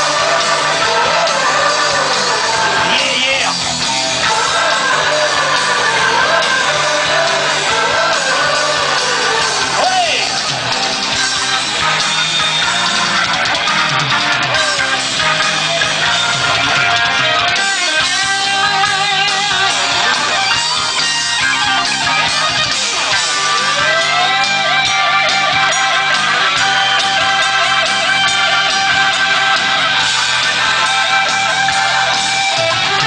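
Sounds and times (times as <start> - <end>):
bass: 0.0 - 33.0
drums: 0.0 - 33.0
electric guitar solo: 0.0 - 33.0.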